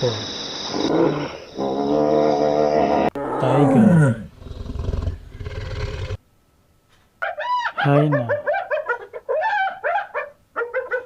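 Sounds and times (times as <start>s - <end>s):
tiger roaring and growling: 1.0s - 6.2s.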